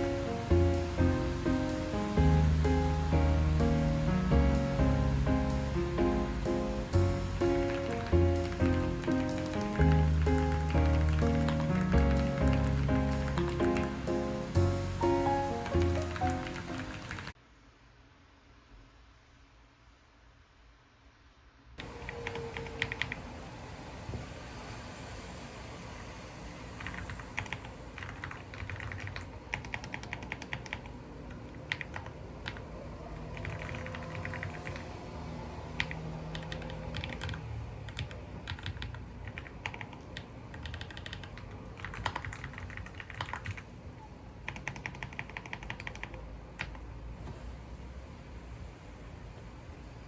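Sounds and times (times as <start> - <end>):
typing on computer keyboard: 7.4 - 14.1, 15.6 - 17.4, 26.8 - 35.0, 35.8 - 43.7, 44.5 - 46.8.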